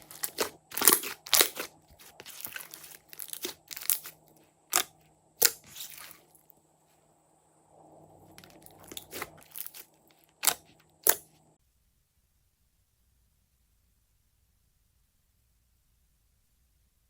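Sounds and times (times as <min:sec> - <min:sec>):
slime crunching and crackling: 0:00.0 - 0:06.3, 0:08.4 - 0:11.2.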